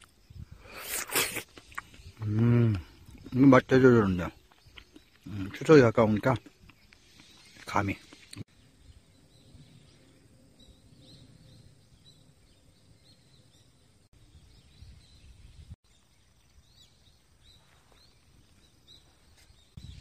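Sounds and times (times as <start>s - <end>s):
small bird chirps: 3.0s - 20.0s.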